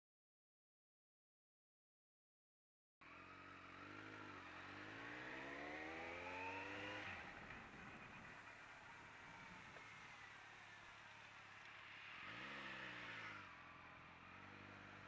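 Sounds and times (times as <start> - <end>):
motorcycle engine accelerating: 3.0 - 15.0
road and wind rumble: 3.0 - 15.0.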